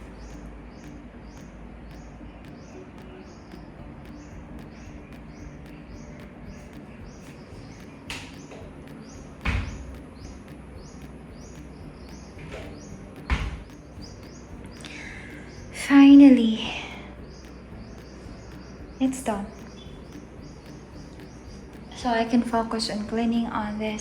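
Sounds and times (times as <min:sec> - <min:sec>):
bird chirping: 0:00.0 - 0:24.0
low background hum: 0:00.0 - 0:24.0
sharp knocks: 0:03.5 - 0:14.9.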